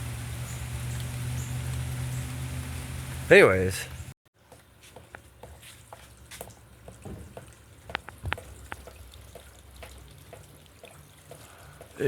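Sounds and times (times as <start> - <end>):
raindrops ticking on hard surface: 0.0 - 3.3, 6.1 - 12.0.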